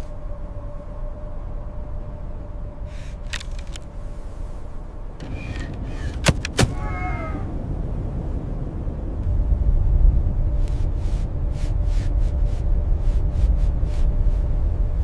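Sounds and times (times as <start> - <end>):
wind rumbling: 0.0 - 15.0
sharp clicks: 5.2 - 6.8.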